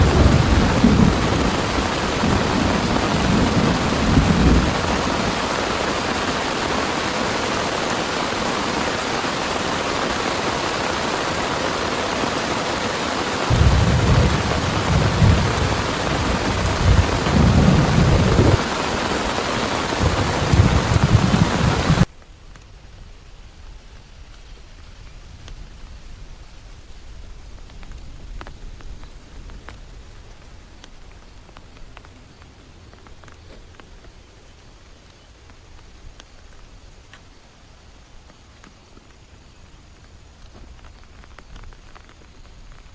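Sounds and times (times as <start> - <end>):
thunder rumbling: 0.0 - 12.8, 13.4 - 22.1
heavy rain pouring: 0.0 - 22.1.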